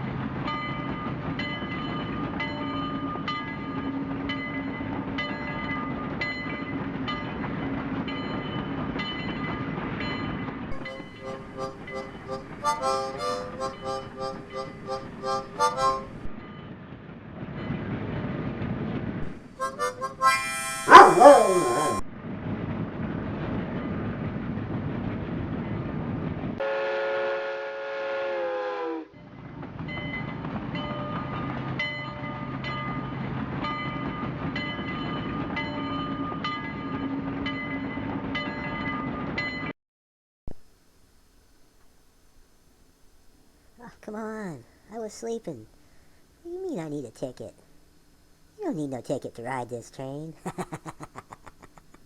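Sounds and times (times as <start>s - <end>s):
train rumbling and clicking: 0.0s - 26.6s, 29.1s - 39.7s
loud pitched sound sliding down: 21.1s - 22.0s
train horn blast: 26.6s - 29.2s.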